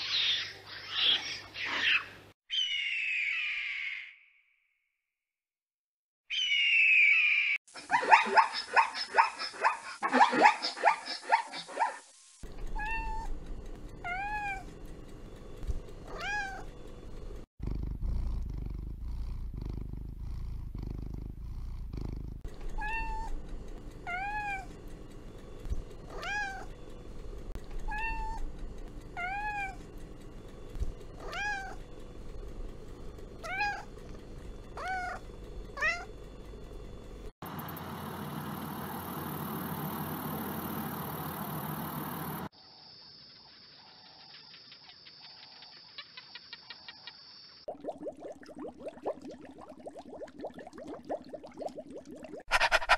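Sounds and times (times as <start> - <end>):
cat purring: 12.5 - 37.3
cat meowing: 12.8 - 13.3, 14.0 - 14.7, 16.1 - 16.7, 22.7 - 23.3, 24.0 - 24.7, 26.1 - 26.7, 27.8 - 28.4, 29.2 - 29.8, 31.2 - 31.8, 33.4 - 33.9, 34.8 - 35.2, 35.8 - 36.1.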